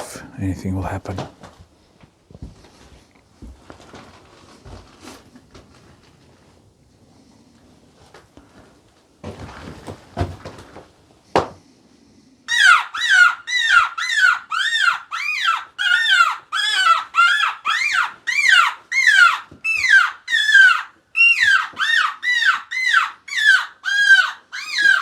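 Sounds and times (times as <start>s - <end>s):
rustling: 1.1s - 11.2s
shrill distress squeals: 12.5s - 25.0s.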